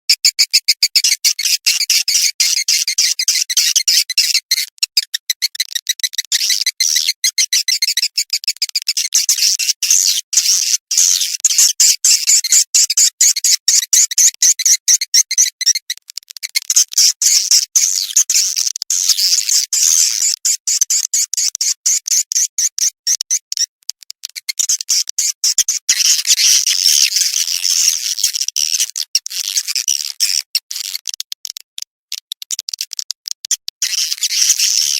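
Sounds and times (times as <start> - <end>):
swiftlet chirps and twitters: 0.1 - 15.9.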